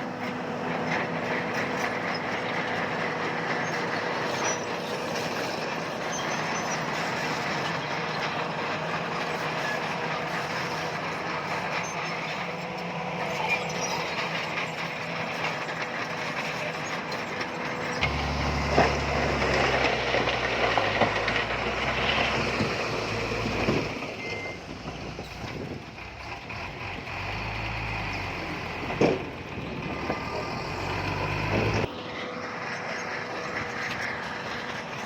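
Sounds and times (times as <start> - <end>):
deeper louder engine: 0.0 - 35.0
diesel machinery running: 0.0 - 35.0
knocks and clanks: 28.8 - 30.5.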